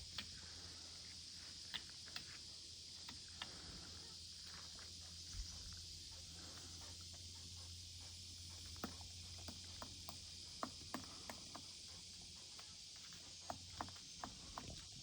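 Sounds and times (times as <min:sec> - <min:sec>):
woodpecker tapping on tree: 0:08.6 - 0:11.8.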